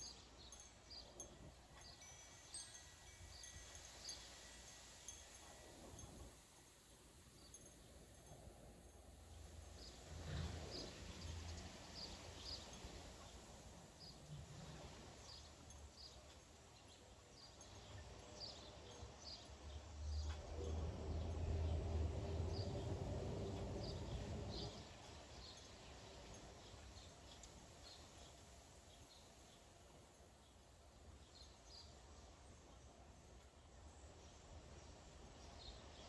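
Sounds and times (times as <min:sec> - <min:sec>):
small birds chirping: 0:15.1 - 0:20.5.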